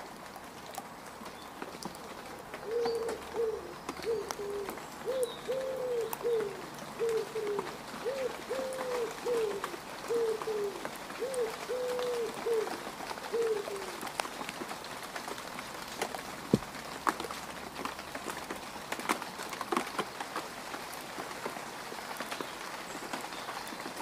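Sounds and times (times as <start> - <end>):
rain falling on mud: 0.0 - 24.0
bird cooing: 2.6 - 14.0.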